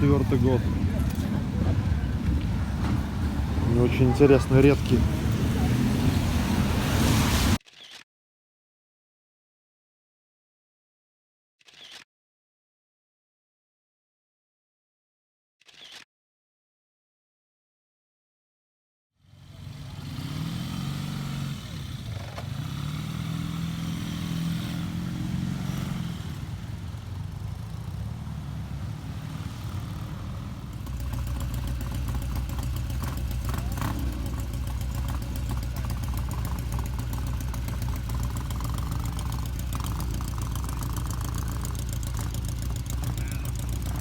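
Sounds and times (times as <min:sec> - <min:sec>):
motorcycle engine running: 0:00.0 - 0:07.6, 0:19.3 - 0:44.0.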